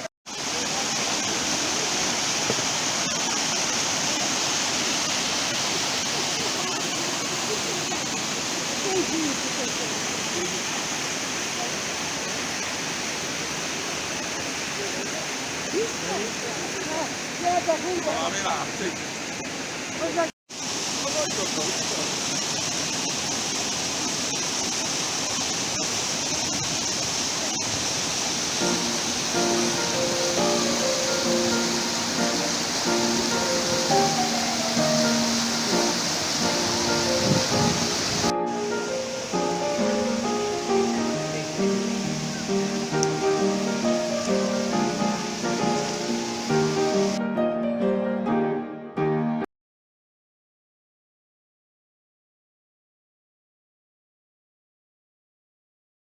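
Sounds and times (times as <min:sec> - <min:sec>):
waterfall pouring: 0:00.3 - 0:47.2
music with sustained notes: 0:28.6 - 0:49.5.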